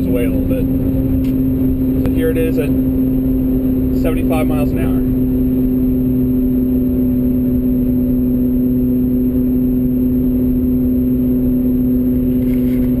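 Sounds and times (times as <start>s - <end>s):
road noise: 0.0s - 13.0s
wheel bearing droning hum: 0.0s - 13.0s.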